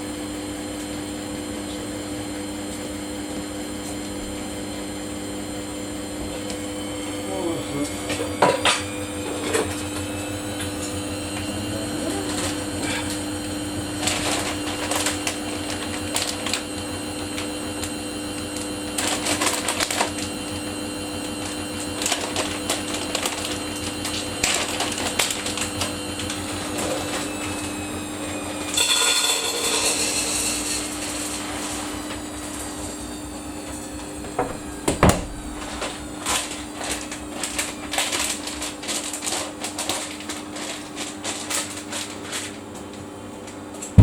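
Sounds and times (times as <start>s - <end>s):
washing machine humming: 0.0s - 44.0s.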